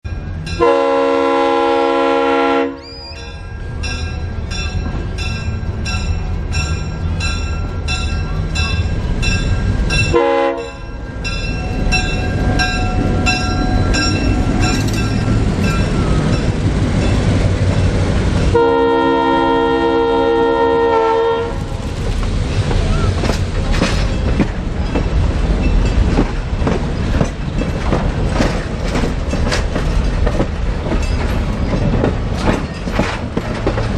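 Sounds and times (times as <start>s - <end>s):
train rumbling: 0.0s - 33.9s
locomotive air horn blasts: 0.6s - 2.8s, 10.1s - 10.9s, 18.5s - 21.7s
wheel clicks over rail joints: 22.0s - 33.9s.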